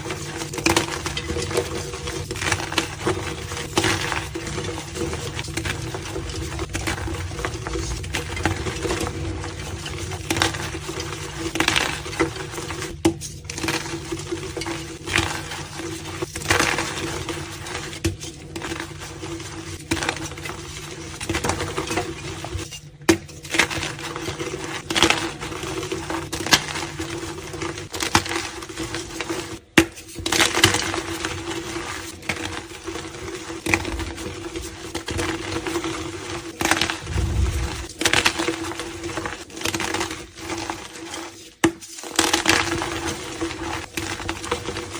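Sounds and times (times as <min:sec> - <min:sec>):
steady low hum: 0:36.9 - 0:37.9.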